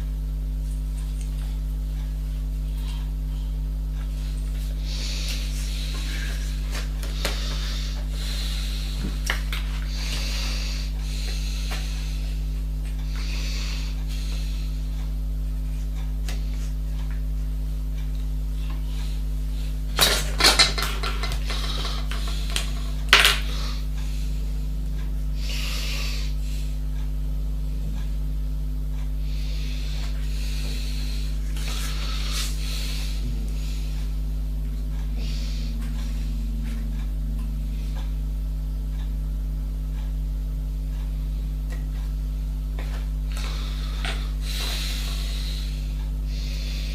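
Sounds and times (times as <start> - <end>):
low electrical hum: 0.0 - 46.9
rubbing and shuffling objects: 19.9 - 23.6.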